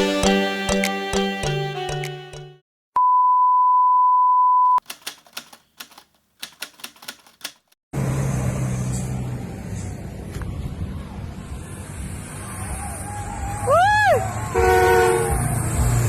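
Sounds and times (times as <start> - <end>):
rapid key clicks: 4.8 - 7.8
outdoor noise: 8.0 - 16.0.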